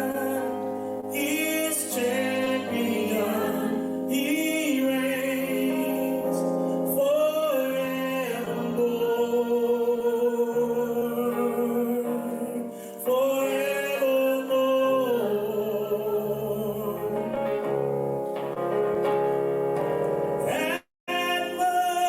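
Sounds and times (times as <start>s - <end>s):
sustained instrumental chords: 0.0s - 6.8s, 16.5s - 20.8s
person singing with vibrato: 0.0s - 17.9s, 20.4s - 22.0s.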